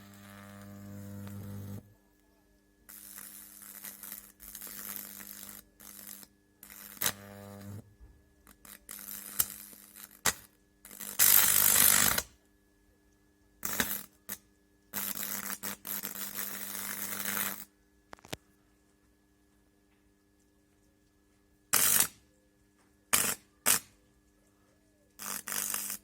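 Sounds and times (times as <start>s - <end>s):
high-voltage arcing crackle: 0.0s - 1.9s, 2.9s - 7.8s, 8.4s - 12.4s, 13.6s - 18.4s, 21.7s - 22.2s, 23.1s - 24.0s, 25.2s - 26.0s
electrical hum: 0.0s - 23.0s.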